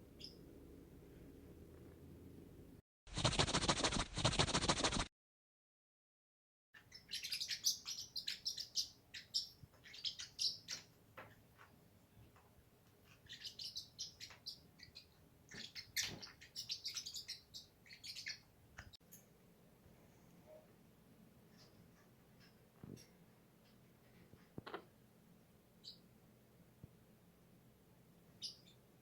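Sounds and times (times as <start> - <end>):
parrot chirping: 0.2 - 0.4, 6.8 - 11.0, 13.2 - 18.5, 28.4 - 28.8.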